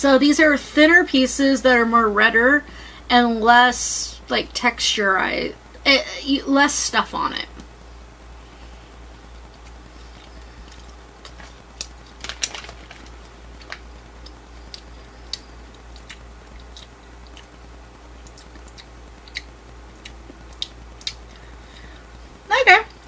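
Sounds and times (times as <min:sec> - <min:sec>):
person chewing jerky: 0:09.2 - 0:22.1.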